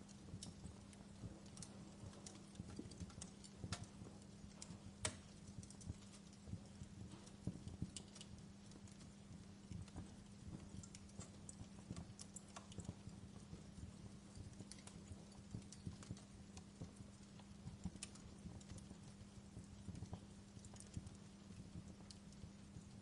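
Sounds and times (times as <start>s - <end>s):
faint low hum: 0.0s - 23.0s
wood fire crackling: 0.0s - 23.0s.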